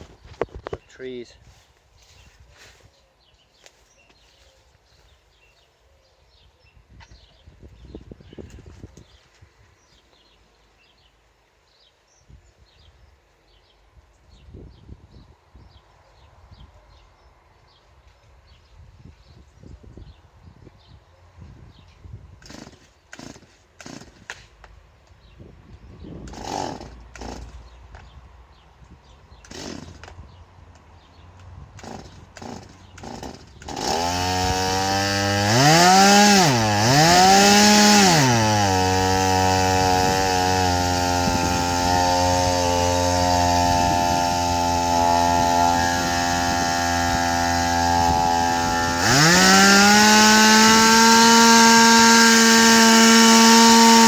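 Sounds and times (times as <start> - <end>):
chainsaw revving and running: 22.4 - 24.4, 26.3 - 27.8, 29.4 - 30.1, 31.8 - 54.0.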